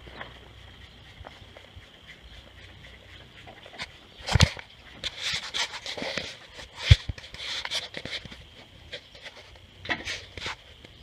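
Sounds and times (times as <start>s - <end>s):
scraping and rustling: 0.0s - 10.7s.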